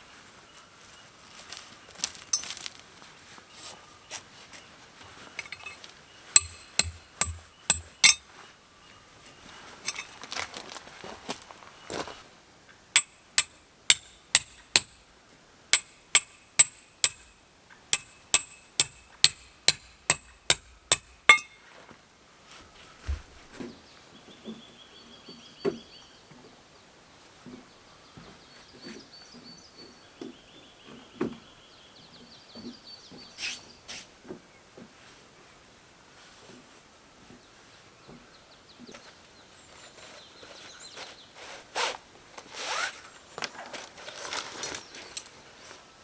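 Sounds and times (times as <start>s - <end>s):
hammer striking metal tent pegs: 5.4s - 5.8s, 6.4s - 8.3s, 13.0s - 15.0s, 15.8s - 17.4s, 18.0s - 21.6s
soft low thumps: 23.1s - 23.4s.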